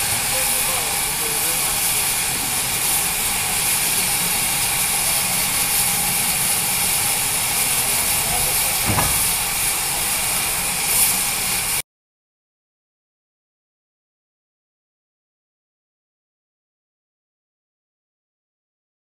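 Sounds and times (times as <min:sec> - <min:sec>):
steam locomotive hissing: 0:00.0 - 0:11.8
low thump: 0:08.8 - 0:09.3.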